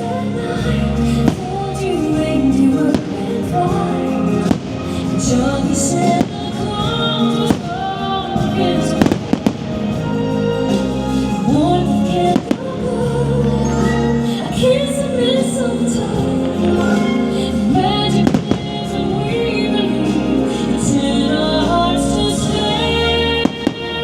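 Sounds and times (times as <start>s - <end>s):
music with singing: 0.0s - 24.0s
fireworks bursting: 1.2s - 13.6s, 15.8s - 19.5s, 22.3s - 24.0s.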